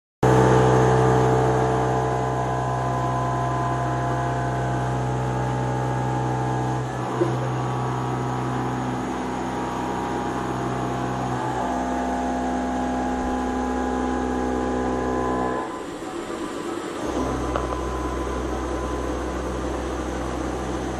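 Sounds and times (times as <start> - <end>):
machining centre humming: 0.3 - 20.9.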